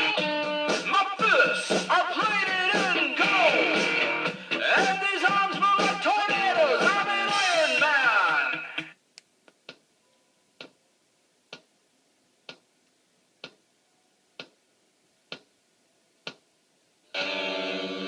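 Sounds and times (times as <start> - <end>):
music: 0.0 - 9.0, 17.0 - 18.0
clock ticking: 11.5 - 11.7, 12.4 - 12.7, 13.4 - 13.6, 14.4 - 14.6, 15.3 - 15.5, 16.2 - 16.5.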